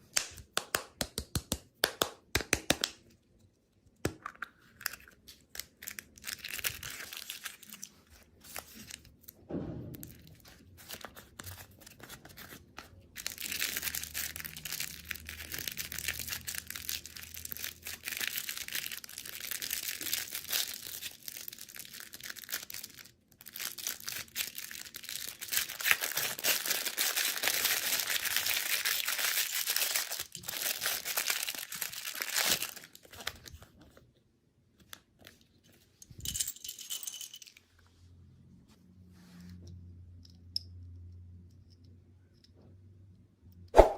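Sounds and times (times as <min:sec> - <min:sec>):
plastic packaging crinkling: 0:04.7 - 0:09.4, 0:10.8 - 0:33.7.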